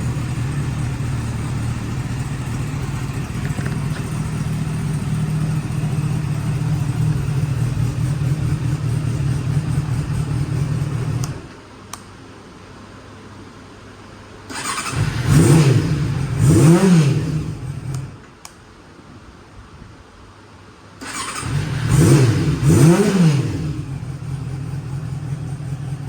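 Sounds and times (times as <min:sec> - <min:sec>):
motorcycle engine idling: 0:00.0 - 0:11.4, 0:21.6 - 0:26.0.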